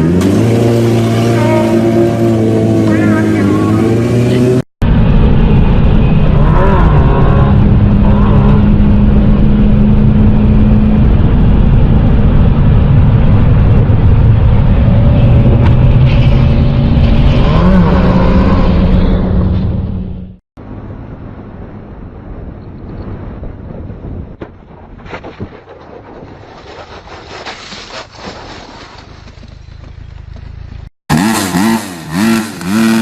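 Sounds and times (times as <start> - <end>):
motorcycle engine running: 29.4 - 33.0.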